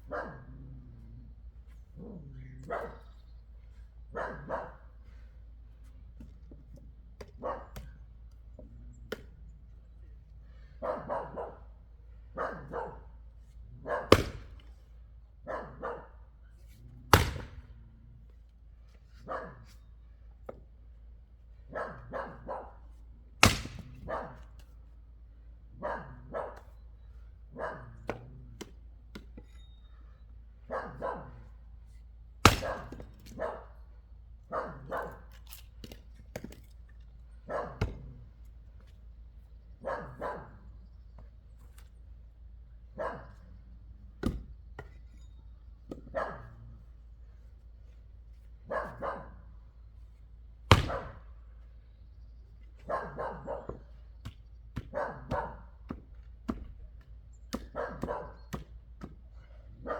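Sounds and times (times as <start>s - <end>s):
dog barking: 0.0s - 0.8s, 2.0s - 3.2s, 4.1s - 5.0s, 7.3s - 8.0s, 10.7s - 13.2s, 13.8s - 14.5s, 15.4s - 16.3s, 19.2s - 19.8s, 21.7s - 22.9s, 24.0s - 24.5s, 25.8s - 26.8s, 27.5s - 28.4s, 30.6s - 31.5s, 32.6s - 33.8s, 34.5s - 35.3s, 37.5s - 38.2s, 39.8s - 40.8s, 42.9s - 43.6s, 46.0s - 46.8s, 48.6s - 49.5s, 52.8s - 54.0s, 54.8s - 55.8s, 57.6s - 58.6s, 59.6s - 59.9s
wood chopping: 6.2s - 8.0s, 8.6s - 9.4s, 14.1s - 14.8s, 17.1s - 17.8s, 23.4s - 24.7s, 28.1s - 29.5s, 32.4s - 33.4s, 35.0s - 36.8s, 37.8s - 38.1s, 44.2s - 45.0s, 50.7s - 51.3s, 53.7s - 59.2s.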